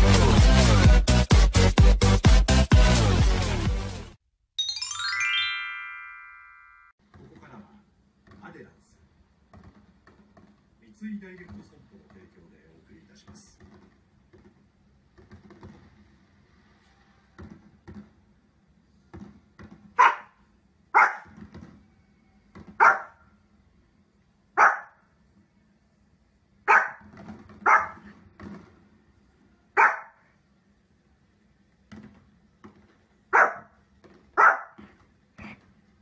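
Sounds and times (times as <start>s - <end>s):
small dog barking: 20.0s - 21.3s, 22.8s - 23.2s, 24.6s - 25.0s, 26.7s - 28.1s, 29.8s - 30.3s, 33.3s - 33.7s, 34.4s - 34.8s.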